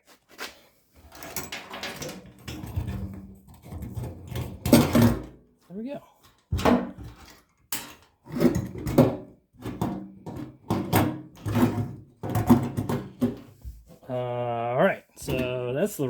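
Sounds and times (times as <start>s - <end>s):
metal parts clunking on workbench: 1.1s - 3.1s.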